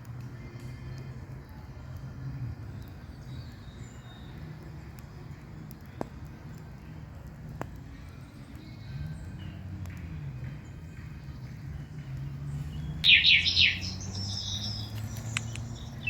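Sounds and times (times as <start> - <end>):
campfire crackling: 0.0 - 16.0
sharp pops from fire: 0.0 - 16.0
faint bird chirps: 12.6 - 16.0.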